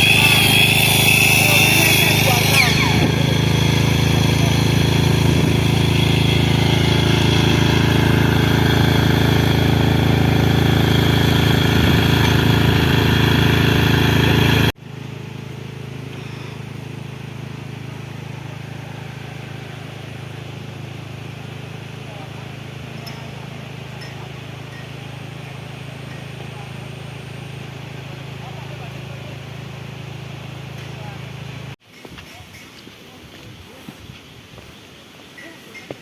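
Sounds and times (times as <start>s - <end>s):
engine running loudly: 0.0s - 31.8s
quieter steady engine: 0.0s - 31.8s.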